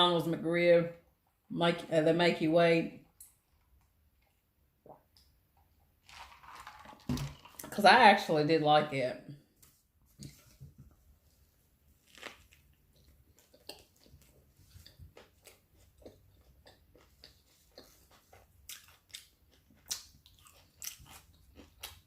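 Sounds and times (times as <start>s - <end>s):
person chewing food: 11.9s - 22.0s.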